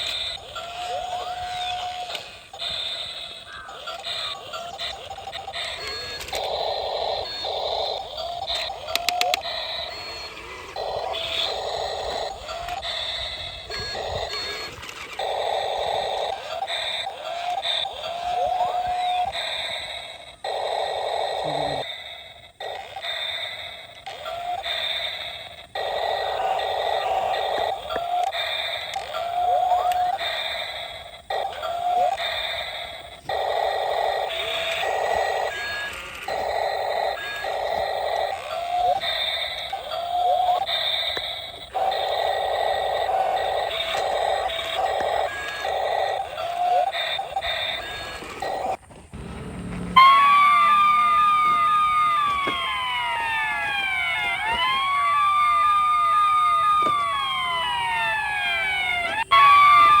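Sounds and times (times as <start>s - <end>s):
toy electric motor whirring: 0.0s - 60.0s
yelping siren: 0.1s - 21.9s, 24.3s - 60.0s
wailing siren: 26.1s - 27.8s, 49.2s - 60.0s.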